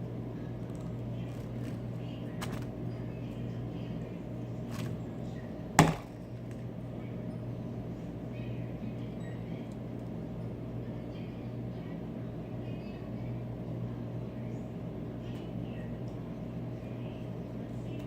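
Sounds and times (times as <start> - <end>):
steady low hum: 0.0 - 18.0
sharp knock: 5.8 - 6.1.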